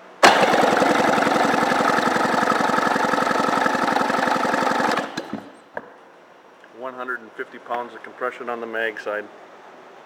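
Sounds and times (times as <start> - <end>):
engine turned over by starter: 0.2 - 5.6.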